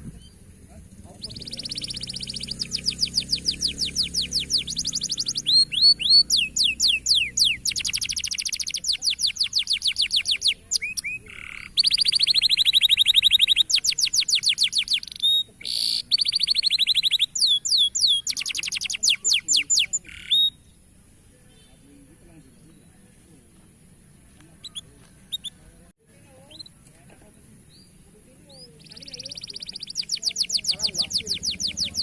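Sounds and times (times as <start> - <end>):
canary singing trilling song: 1.1 - 20.8, 27.7 - 32.0.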